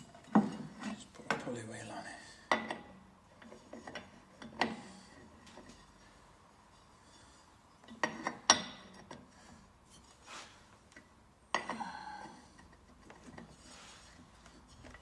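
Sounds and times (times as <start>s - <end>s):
light metal scrapes: 3.4s - 8.2s, 9.3s - 10.7s, 13.2s - 15.0s.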